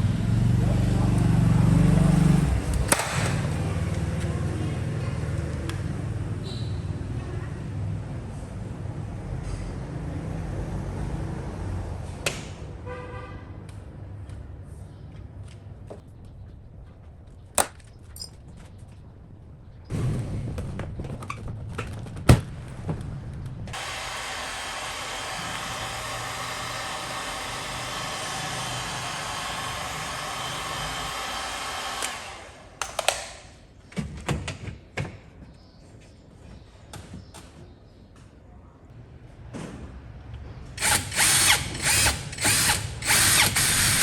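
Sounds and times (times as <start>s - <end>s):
power tool motor running: 1.8s - 4.2s, 23.8s - 32.8s, 40.8s - 44.0s
knocks and handling clatter: 15.9s - 23.8s.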